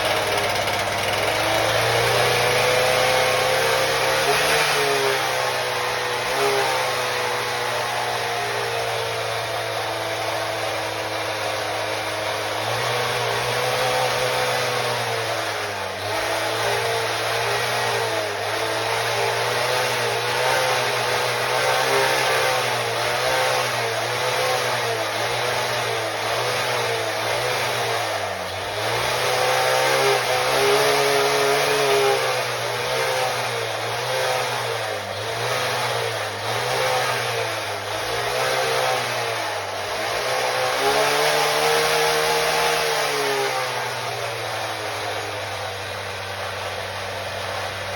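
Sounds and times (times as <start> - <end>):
concrete saw engine running: 0.0 - 47.9.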